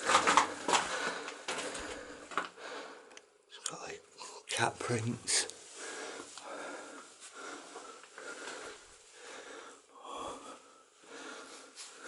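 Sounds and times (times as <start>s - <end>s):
person breathing heavily: 0.0s - 3.2s, 5.6s - 12.0s.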